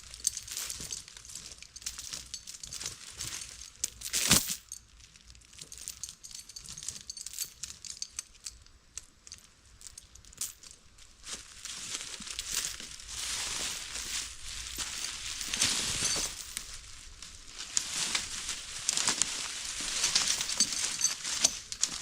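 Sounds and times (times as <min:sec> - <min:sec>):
dry leaves and brush crackling: 0:11.0 - 0:22.0.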